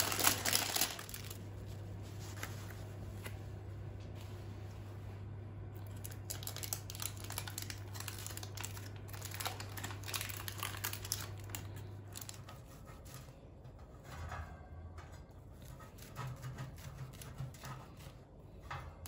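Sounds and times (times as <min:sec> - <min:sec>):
crinkling and clicking handling: 0:00.0 - 0:01.4, 0:05.8 - 0:14.3
steady low hum: 0:00.0 - 0:19.0.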